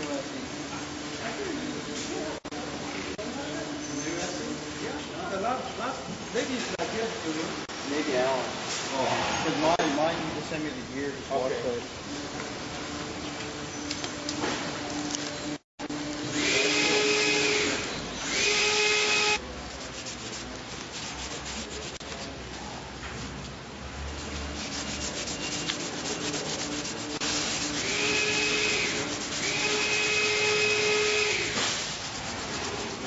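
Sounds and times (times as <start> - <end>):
machine hissing and whining: 27.3 - 31.8.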